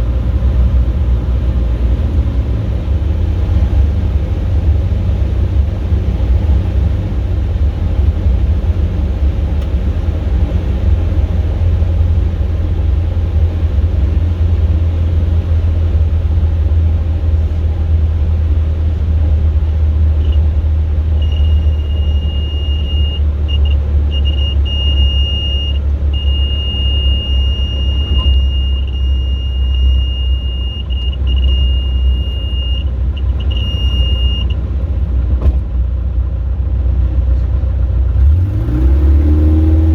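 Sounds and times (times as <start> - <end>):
aircraft cabin engine rumble: 0.0 - 38.1
stall warning beeping: 21.2 - 34.6.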